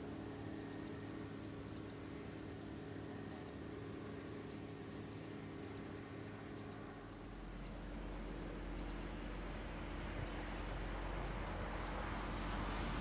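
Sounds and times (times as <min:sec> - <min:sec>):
steady low hum: 0:00.0 - 0:13.0
small birds chirping: 0:00.4 - 0:13.0.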